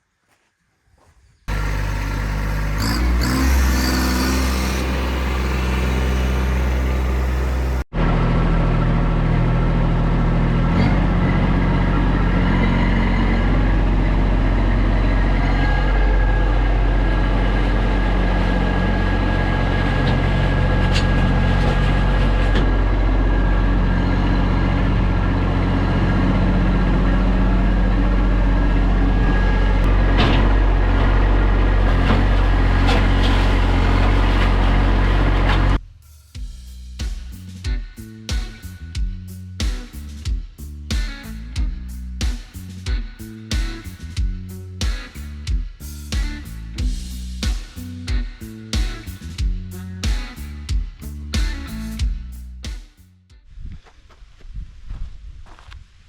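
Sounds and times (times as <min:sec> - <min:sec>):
tractor diesel engine running: 0:01.5 - 0:35.8.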